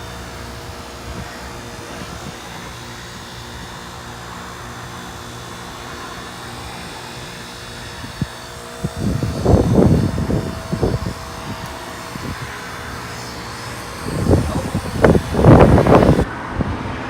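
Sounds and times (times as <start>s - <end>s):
heat pump compressor humming: 0.0s - 16.3s
wind buffeting microphone: 7.7s - 17.0s.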